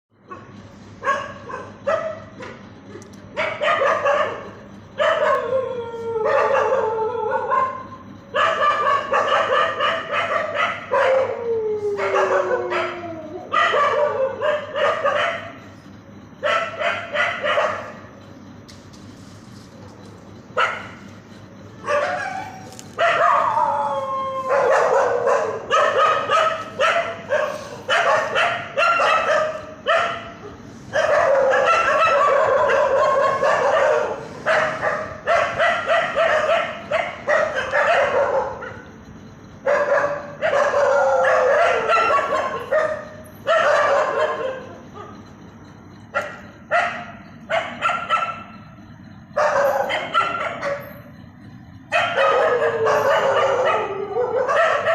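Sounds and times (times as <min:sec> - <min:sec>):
dogs barking and yelping: 0:00.2 - 0:18.3, 0:19.7 - 0:54.9.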